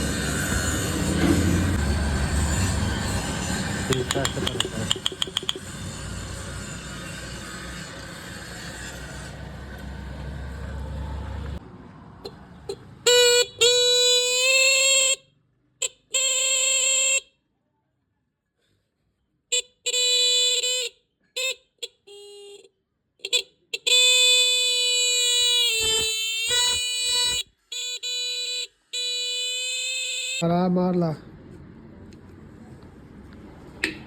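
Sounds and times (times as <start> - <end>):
motorbike horn blasts: 19.6 - 30.4.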